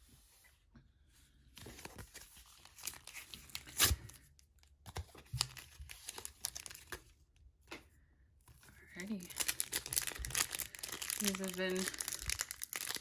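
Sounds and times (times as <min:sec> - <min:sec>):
foil wrapper tearing and crinkling: 0:01.9 - 0:04.2, 0:05.4 - 0:06.9, 0:09.0 - 0:13.0.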